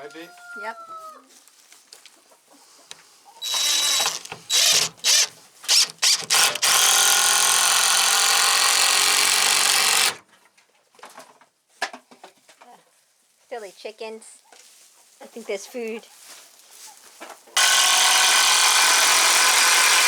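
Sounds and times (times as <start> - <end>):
power drill running: 3.4 - 10.2, 17.6 - 20.0.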